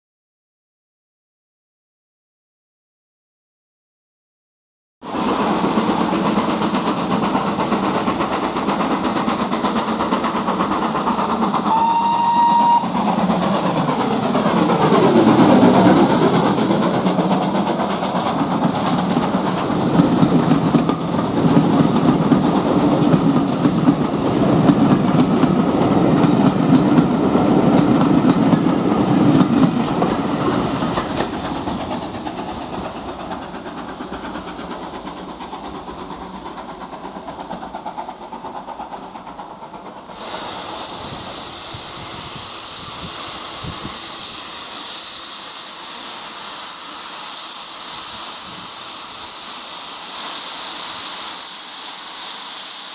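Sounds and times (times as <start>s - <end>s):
steam train rumbling past: 5.0s - 52.9s
hiss of escaping steam: 5.1s - 52.9s
wheels clicking over rail joints: 5.4s - 40.3s.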